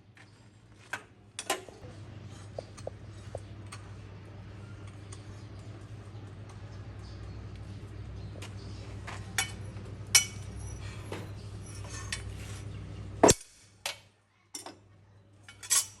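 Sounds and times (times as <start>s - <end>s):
low machine hum: 0.0s - 13.4s
metal tools clinking: 9.0s - 12.6s, 15.4s - 16.0s.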